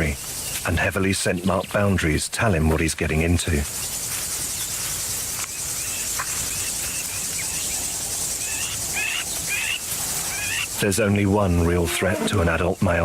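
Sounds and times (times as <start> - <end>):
bird chirping: 0.0 - 13.0
crickets chirring: 0.0 - 13.0.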